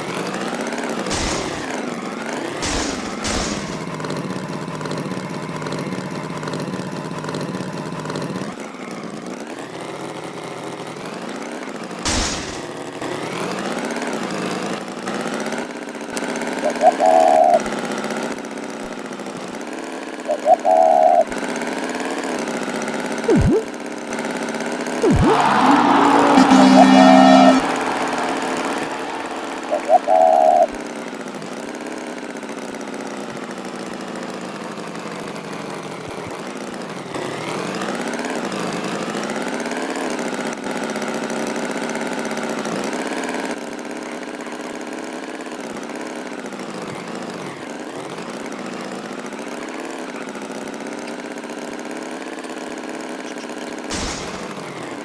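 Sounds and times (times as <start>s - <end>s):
tractor engine running: 1.1s - 1.8s, 2.6s - 4.1s, 12.1s - 12.8s.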